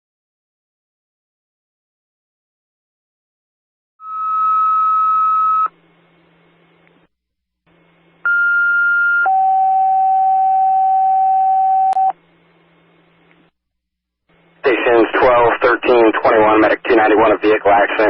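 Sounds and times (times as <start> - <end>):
faint radio hiss and hum: 14.3 - 18.0.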